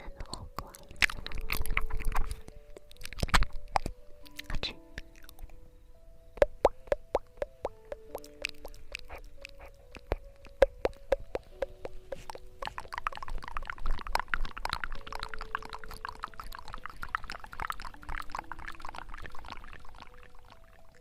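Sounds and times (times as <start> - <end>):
bubbling crackling liquid: 0.3 - 5.4, 6.4 - 21.0
water drops plopping: 6.4 - 9.2, 10.0 - 20.0.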